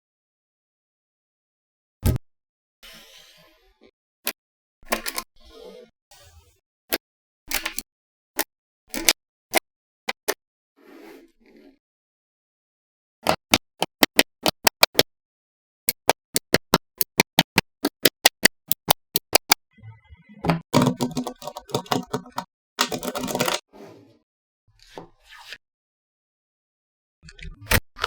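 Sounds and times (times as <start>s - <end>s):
magnetic balls clicking together: 16.0s - 19.6s, 20.8s - 23.6s
magnetic balls rattling: 20.5s - 23.6s.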